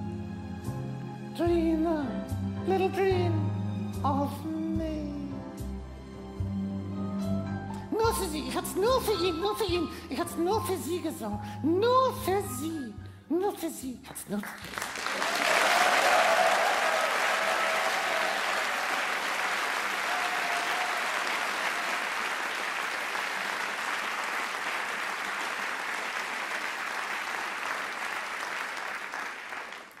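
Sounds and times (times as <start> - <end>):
audience applauding: 14.5 - 30.0
faint cheers: 15.1 - 22.4.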